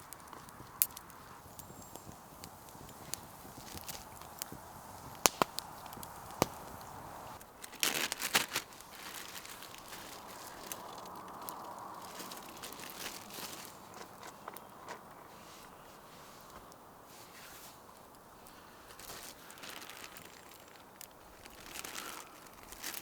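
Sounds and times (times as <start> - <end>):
rustling: 0.0 - 23.0
wood fire crackling: 0.0 - 23.0
sharp pops: 0.2 - 7.0.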